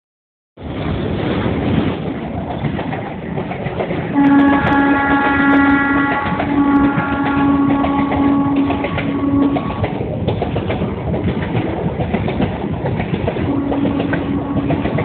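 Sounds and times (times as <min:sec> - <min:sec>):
train rumbling past: 0:00.6 - 0:15.0
train horn blast: 0:04.1 - 0:10.0, 0:13.4 - 0:15.0.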